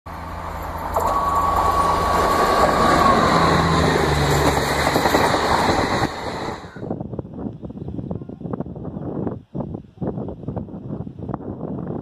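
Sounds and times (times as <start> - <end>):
steady high whine: 0.1 - 6.9
train rushing past: 0.1 - 6.9
wheels clattering over rail joints: 0.6 - 6.5.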